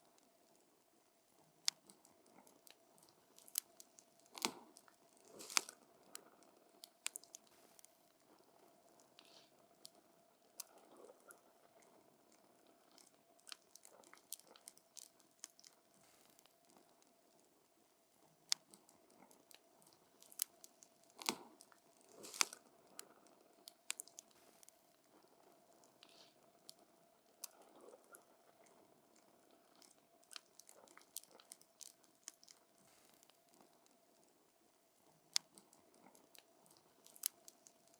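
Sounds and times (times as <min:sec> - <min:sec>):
wood fire crackling and popping: 0:22.1 - 0:22.6.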